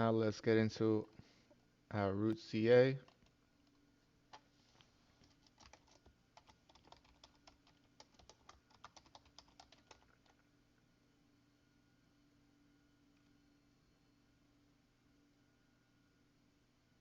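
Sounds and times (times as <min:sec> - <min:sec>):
keyboard typing: 0:03.0 - 0:04.5, 0:05.2 - 0:10.4.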